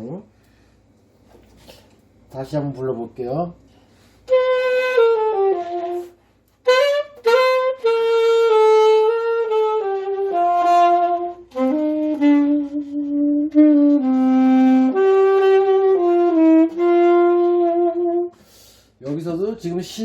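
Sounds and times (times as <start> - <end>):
saxophone slow melody: 4.2 - 18.4.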